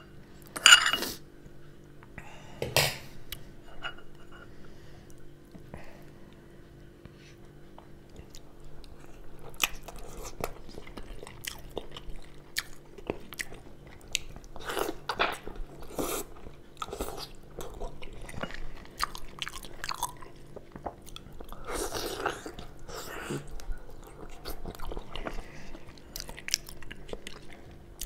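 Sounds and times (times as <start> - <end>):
person chewing meat: 7.8 - 28.0.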